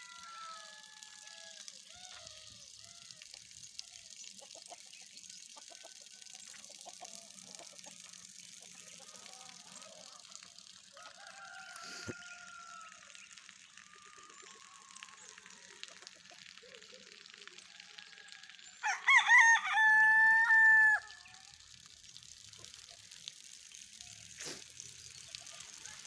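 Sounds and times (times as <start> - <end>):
chickens clucking: 4.3 - 10.4, 11.2 - 12.6.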